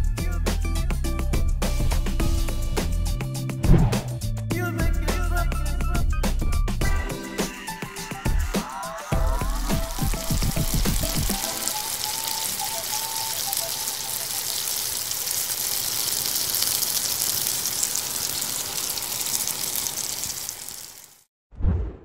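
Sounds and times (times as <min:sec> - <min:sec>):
background music: 0:00.0 - 0:13.9
onion rings sizzling in hot oil: 0:07.1 - 0:21.3.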